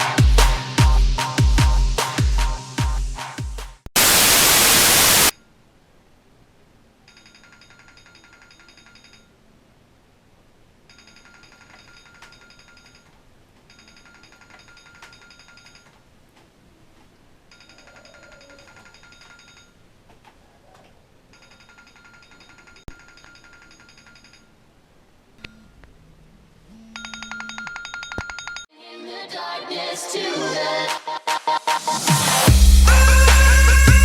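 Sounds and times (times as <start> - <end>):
bass-heavy electronic music: 0.0 - 3.8, 31.8 - 34.0
burst of static hiss: 4.0 - 5.3
high electronic ringing tone: 26.7 - 28.7.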